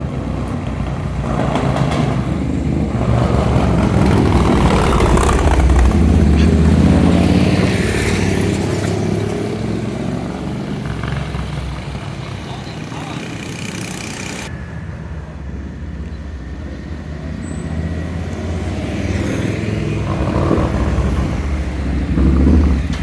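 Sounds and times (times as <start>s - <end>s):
motorcycle engine running: 0.1s - 14.5s.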